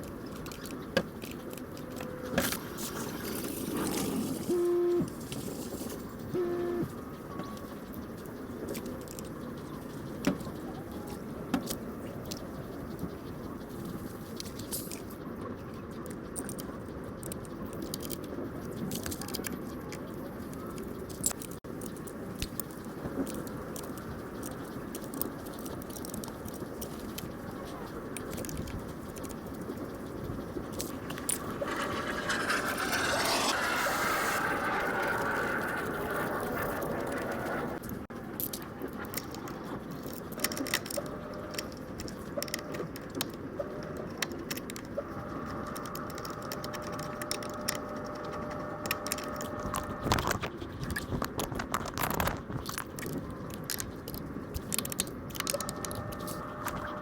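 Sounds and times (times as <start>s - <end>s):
sharp ticks: 5.1s - 56.9s
metal parts clinking and scraping: 30.7s - 35.7s.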